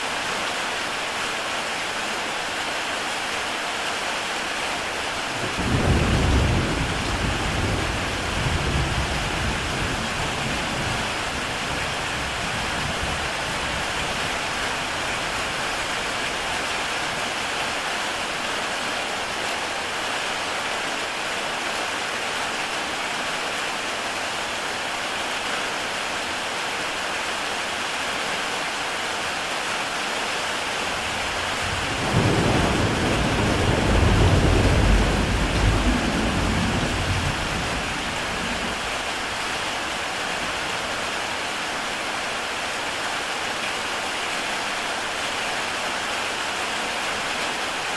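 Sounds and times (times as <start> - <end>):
heavy rain on tile roof: 0.0 - 47.9
thunder rumbling: 5.4 - 13.9, 30.9 - 39.4.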